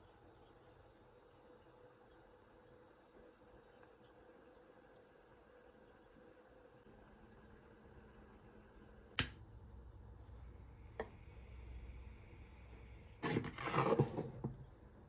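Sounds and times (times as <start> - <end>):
sharp click: 9.2 - 9.4
rustling or scraping: 13.2 - 14.6.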